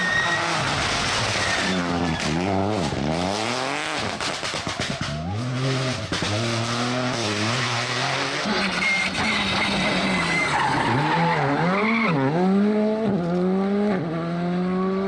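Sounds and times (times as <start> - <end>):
rally car engine revving: 0.0 - 15.0
sharp exhaust pops: 3.9 - 7.4.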